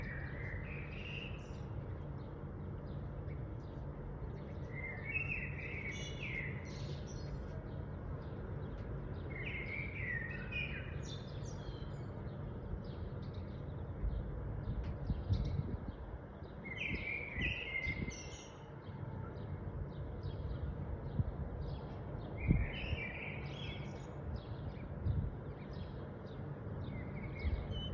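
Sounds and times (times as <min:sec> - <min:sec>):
low background rumble: 0:00.0 - 0:09.8
birds chirping: 0:00.0 - 0:14.4.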